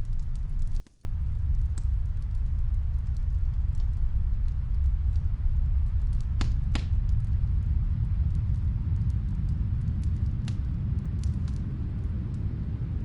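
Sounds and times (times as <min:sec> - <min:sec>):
faint fireplace crackling: 0:00.0 - 0:13.0
snowstorm wind rumble: 0:00.0 - 0:13.0.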